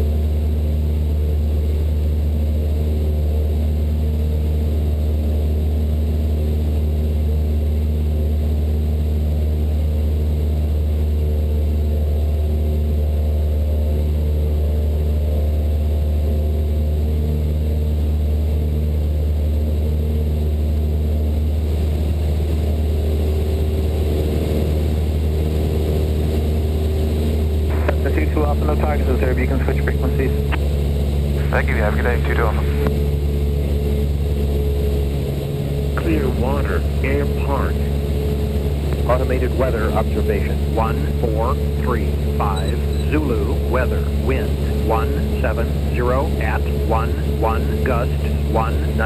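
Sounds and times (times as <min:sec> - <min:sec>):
airplane engine and propeller droning: 0:00.0 - 0:49.0.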